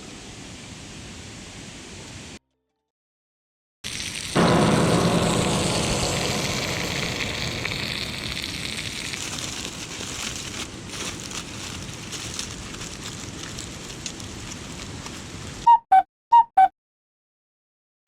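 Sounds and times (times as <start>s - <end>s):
campfire hissing and crackling: 3.9s - 15.6s.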